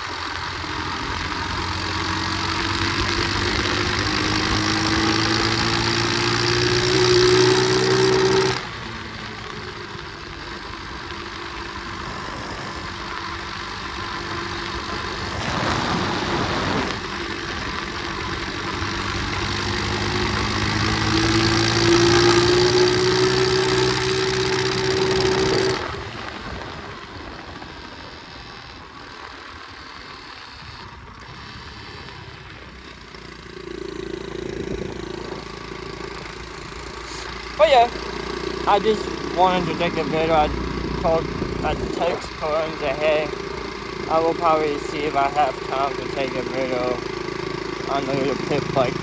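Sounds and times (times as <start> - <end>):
pit bike engine revving: 0.0 - 49.0
rush of noise: 11.8 - 17.7.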